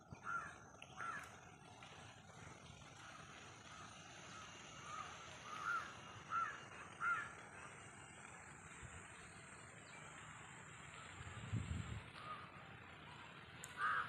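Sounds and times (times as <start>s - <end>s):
faint outdoor background: 0.0s - 14.0s
bird calling: 0.1s - 1.5s, 2.9s - 11.4s, 12.1s - 14.0s.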